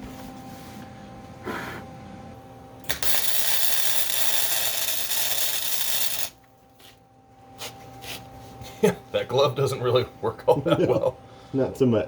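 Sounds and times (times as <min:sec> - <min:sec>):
welding arc crackling: 0:02.9 - 0:06.4.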